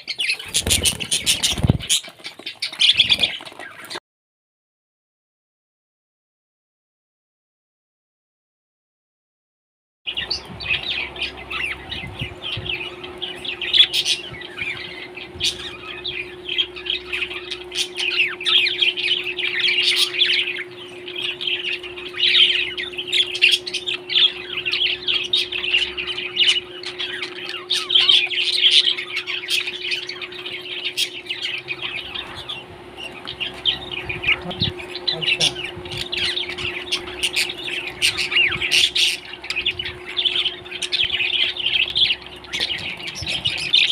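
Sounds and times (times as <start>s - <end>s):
parrot chirping and chattering: 0.0s - 4.0s, 10.1s - 43.9s
low hum: 10.1s - 43.9s.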